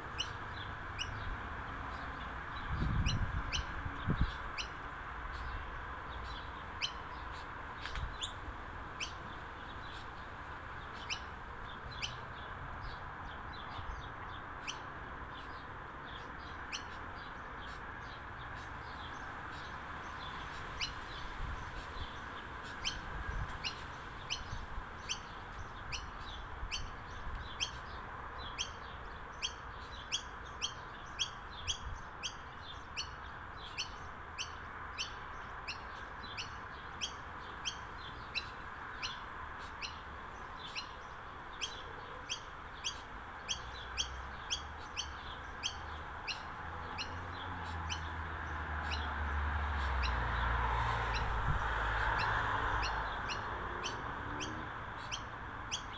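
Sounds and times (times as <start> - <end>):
bird chirping: 16.1 - 55.9.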